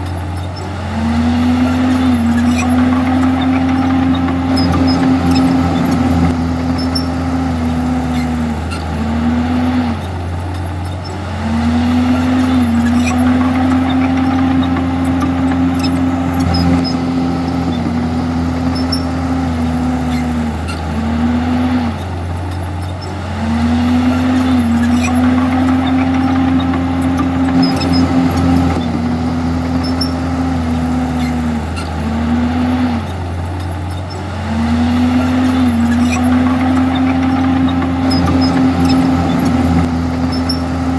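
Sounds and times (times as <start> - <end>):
bulldozer diesel engine under load: 0.0 - 40.9.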